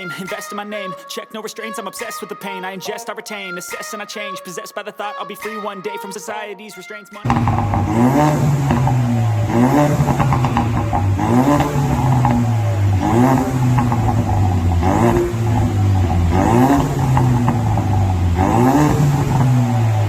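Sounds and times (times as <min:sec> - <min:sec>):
car engine revving: 0:07.3 - 0:20.0.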